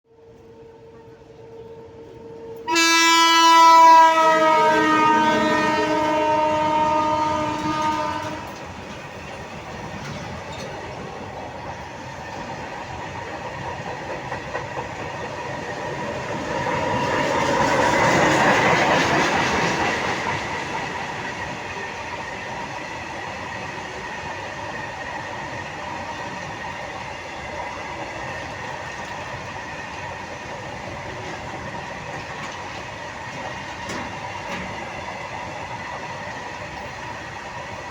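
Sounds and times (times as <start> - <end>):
freight train rumbling past: 0.1 - 37.9
locomotive horn blast: 2.0 - 8.6
wagons clattering on rails: 7.6 - 11.1, 31.1 - 34.9.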